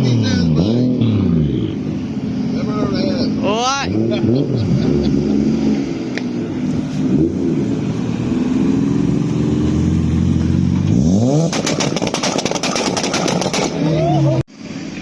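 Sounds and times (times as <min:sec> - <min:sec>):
car engine revving: 0:00.0 - 0:15.0
rapid crackling bangs: 0:11.5 - 0:13.8.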